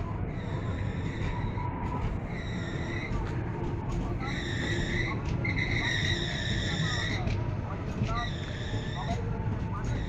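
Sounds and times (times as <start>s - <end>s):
train rumbling: 0.0s - 10.0s
train wheels squealing: 0.3s - 3.2s, 4.2s - 7.4s, 8.1s - 9.3s.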